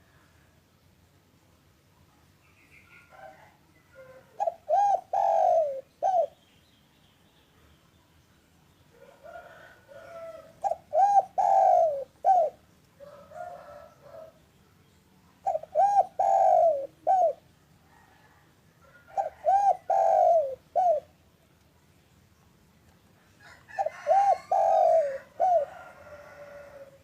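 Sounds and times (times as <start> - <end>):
dove cooing: 3.0 - 6.4, 9.0 - 14.4, 15.4 - 21.2, 23.4 - 27.0.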